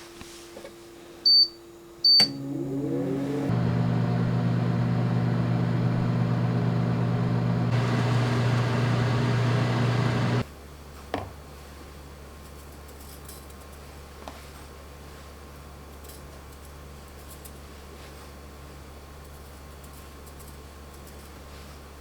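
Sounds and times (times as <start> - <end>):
microwave button beeps: 1.3 - 2.5
microwave click: 2.1 - 10.4
microwave humming: 2.1 - 10.4.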